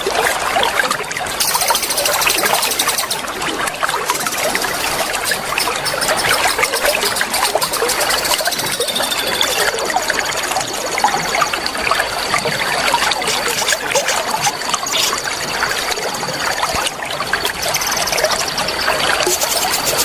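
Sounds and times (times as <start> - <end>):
water trickling and babbling: 0.0 - 20.0
high rapid trill: 1.3 - 3.4, 4.0 - 9.9, 17.6 - 20.0.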